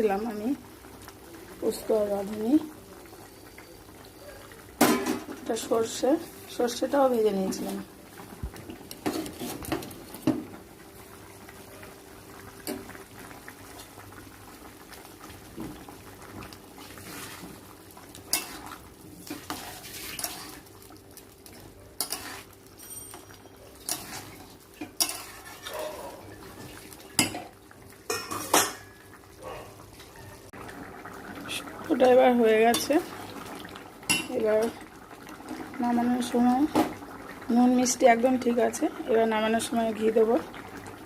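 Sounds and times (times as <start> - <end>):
metal spoon scraping pot: 19.3 - 20.6, 22.0 - 24.4, 25.0 - 25.8.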